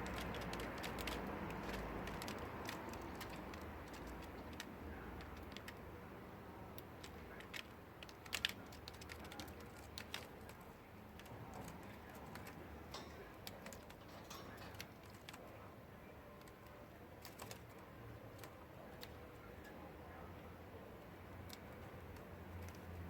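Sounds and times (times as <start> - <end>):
bird beak clicking while preening: 0.0 - 5.8.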